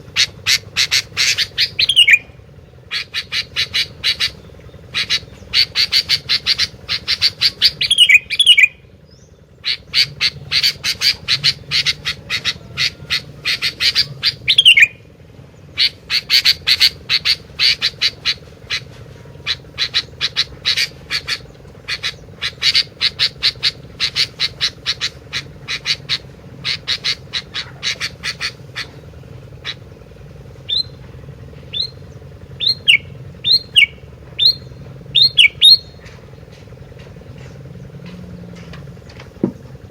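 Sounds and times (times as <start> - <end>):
songbird chattering calls: 0.0 - 39.9
short downslurred bird whistles: 32.6 - 36.0.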